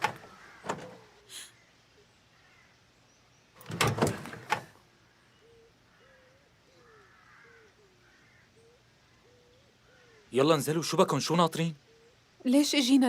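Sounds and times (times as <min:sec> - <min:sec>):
car door clunking shut: 0:00.0 - 0:01.0, 0:03.6 - 0:04.8
faint birdsong: 0:00.0 - 0:13.0.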